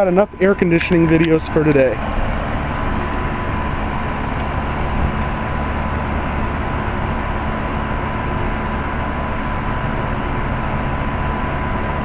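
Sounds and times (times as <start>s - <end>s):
thin constant tone: 0.0s - 8.0s
air conditioner compressor humming: 0.0s - 12.0s.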